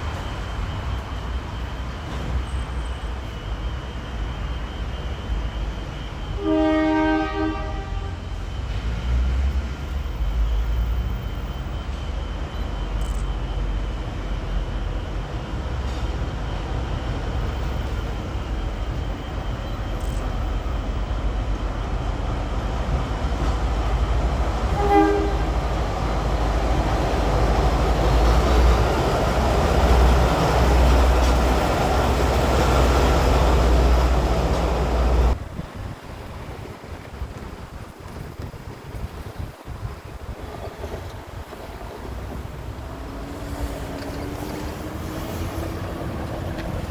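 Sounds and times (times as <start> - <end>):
train rumble: 0.0 - 46.9
locomotive horn: 6.4 - 8.4, 24.6 - 25.8.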